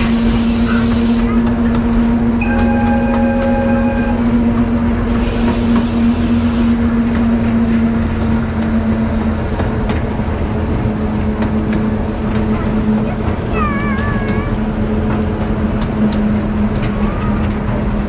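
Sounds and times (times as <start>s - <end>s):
train mechanical hum: 0.0s - 18.0s
wheel and rail noise: 0.0s - 18.0s
brief high hiss: 5.2s - 6.8s.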